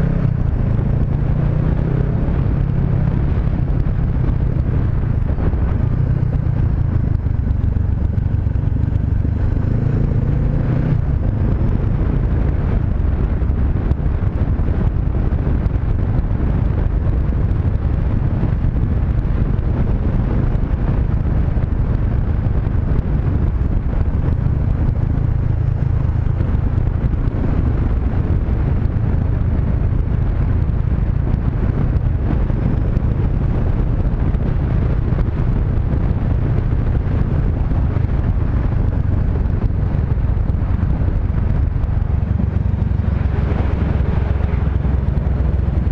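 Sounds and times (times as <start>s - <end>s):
motorcycle engine running: 0.0s - 45.9s
wind noise on microphone: 0.0s - 45.9s.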